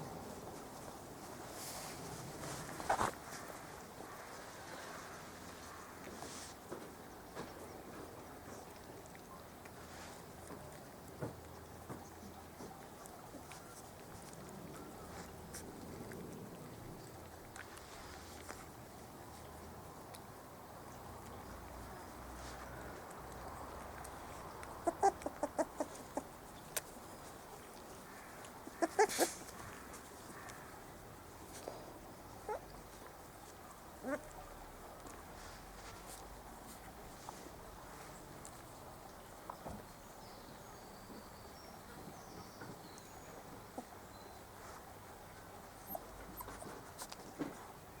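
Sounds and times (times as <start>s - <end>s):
small taps of puppies moving: 10.4s - 16.4s
puppies yelping: 24.8s - 26.4s, 28.6s - 29.6s, 32.4s - 32.7s, 34.0s - 34.3s, 45.8s - 46.8s.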